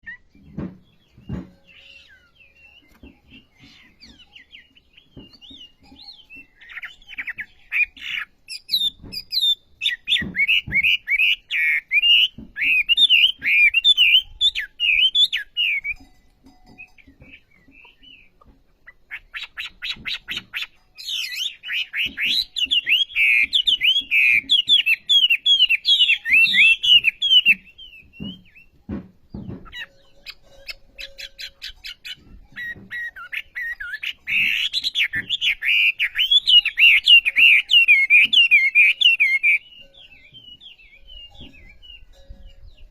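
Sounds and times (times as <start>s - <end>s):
bird chirps: 0.0s - 42.9s
songbird singing twittering song: 0.0s - 42.9s
soft knocks: 0.2s - 2.0s, 26.8s - 30.3s.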